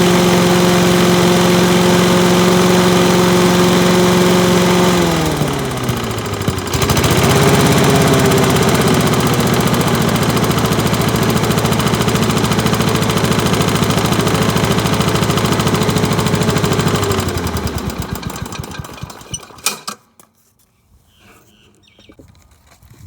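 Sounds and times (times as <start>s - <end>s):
lawn mower engine running: 0.0s - 20.2s
engine clunk: 5.4s - 20.2s.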